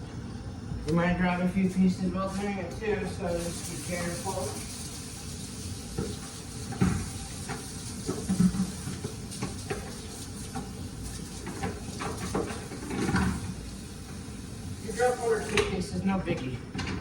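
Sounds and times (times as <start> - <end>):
meat sizzling in a skillet: 2.6 - 15.8.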